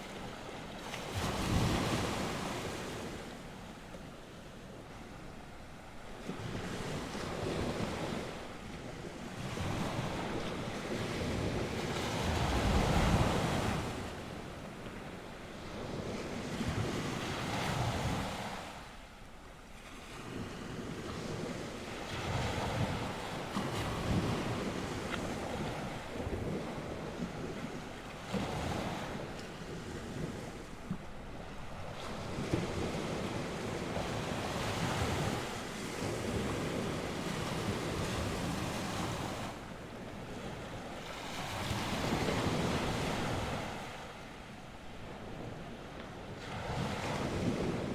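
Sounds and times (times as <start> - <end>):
sea waves breaking on shore: 0.0 - 47.9
wind buffeting microphone: 20.1 - 47.9.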